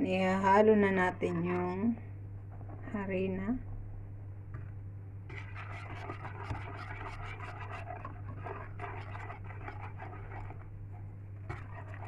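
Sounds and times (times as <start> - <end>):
utensil stirring batter in bowl: 0.8 - 2.7, 4.5 - 12.0.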